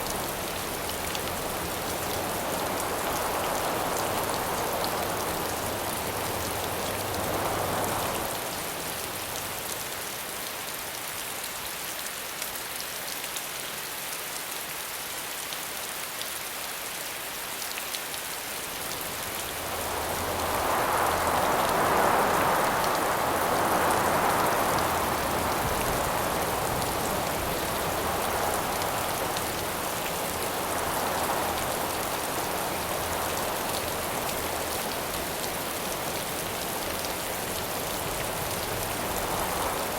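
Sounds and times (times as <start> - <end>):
steady rain falling: 0.0 - 39.9
wind gust: 19.0 - 36.8.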